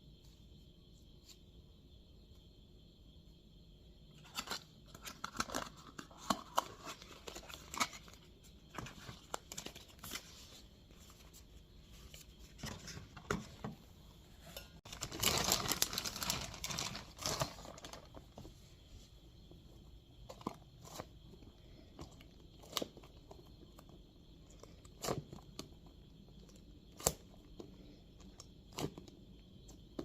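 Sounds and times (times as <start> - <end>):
plastic packaging crinkling: 14.9 - 18.3.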